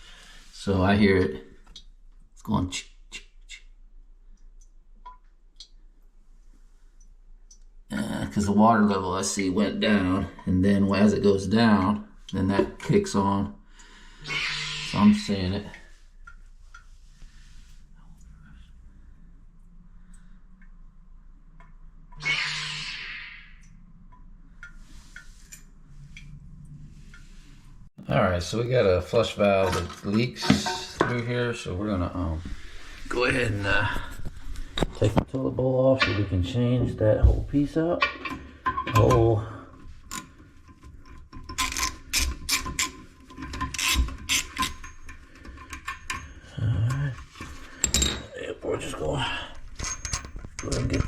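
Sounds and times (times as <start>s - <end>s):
wrench ratcheting on metal bolts: 41.5s - 45.1s.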